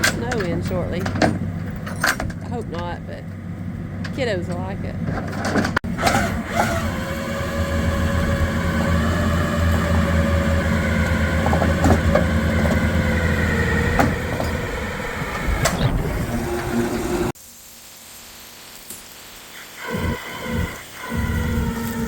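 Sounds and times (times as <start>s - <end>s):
vehicle engine running under load: 0.0s - 17.4s.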